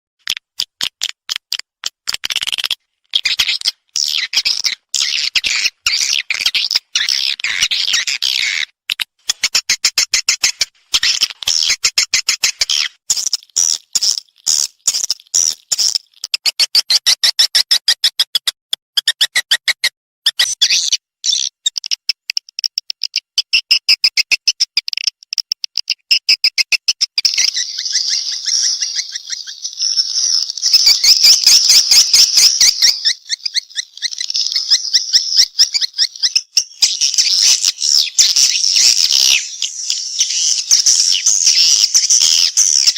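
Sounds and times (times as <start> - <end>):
swiftlet chattering chirps: 26.7 - 42.9.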